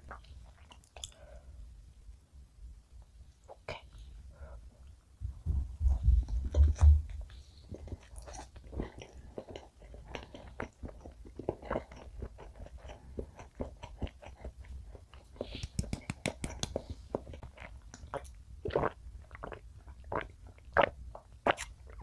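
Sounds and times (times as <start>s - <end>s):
chewing with wet mouth clicks: 7.7s - 22.0s.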